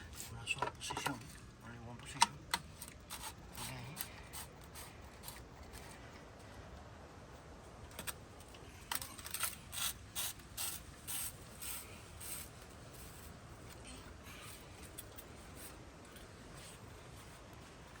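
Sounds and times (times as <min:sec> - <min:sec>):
ratchet clicking: 0:08.9 - 0:12.6.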